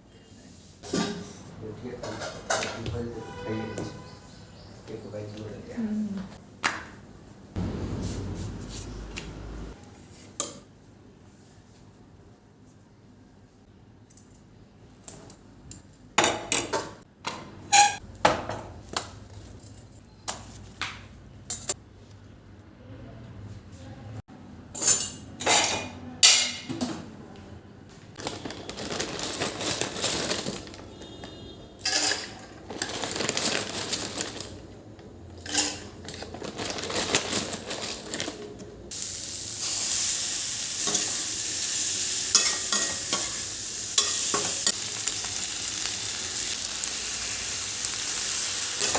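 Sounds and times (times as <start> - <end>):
cookware clattering: 24.7 - 27.0, 31.8 - 32.6, 35.4 - 36.4, 42.3 - 43.4, 44.0 - 44.8
food sizzling in a pan: 38.9 - 48.9.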